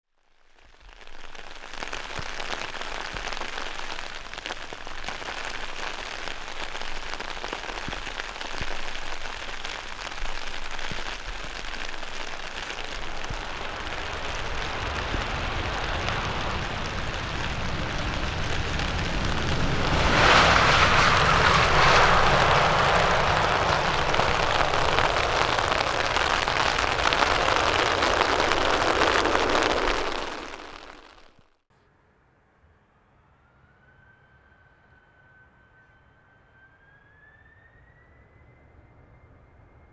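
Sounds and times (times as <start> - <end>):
jet engine roar: 12.5 - 31.0.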